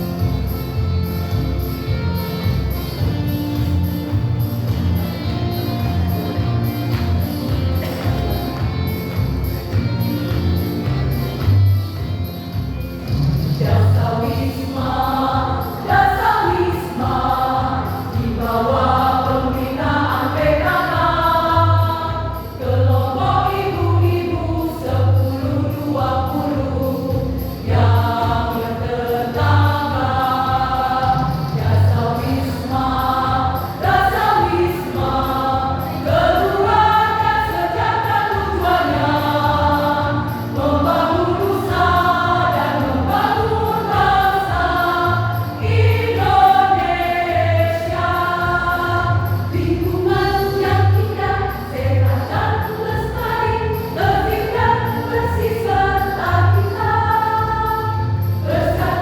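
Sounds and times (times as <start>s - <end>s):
choir singing: 13.6s - 59.0s.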